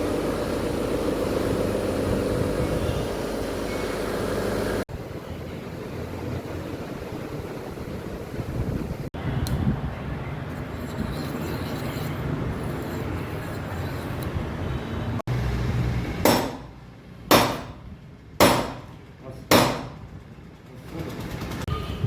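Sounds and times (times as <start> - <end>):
hammer striking metal: 16.2 - 17.8, 18.4 - 20.0.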